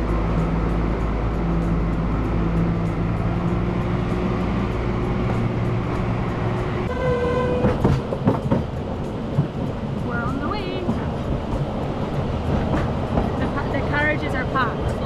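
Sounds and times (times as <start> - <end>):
carriages clanking: 0.0 - 15.0
train rumbling: 0.0 - 15.0
locomotive toot: 1.9 - 8.0.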